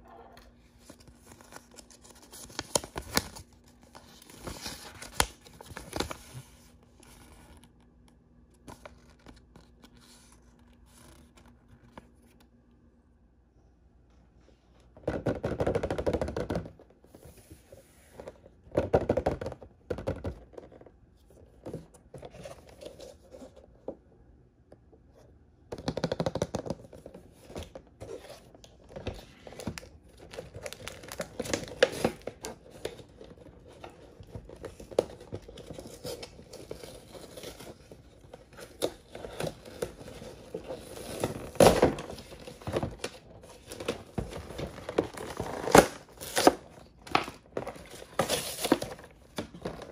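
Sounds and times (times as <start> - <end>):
packaging rustling: 26.7 - 49.9.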